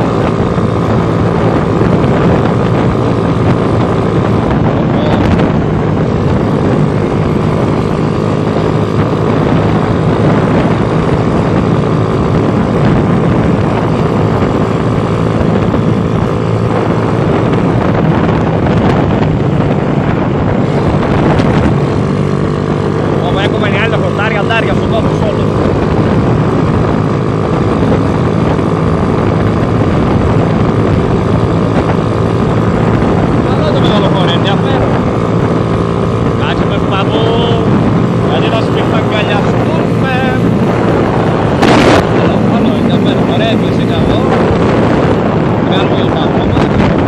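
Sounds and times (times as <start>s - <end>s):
motorcycle engine cruising: 0.0s - 47.0s
wind rushing over microphone: 0.0s - 47.0s.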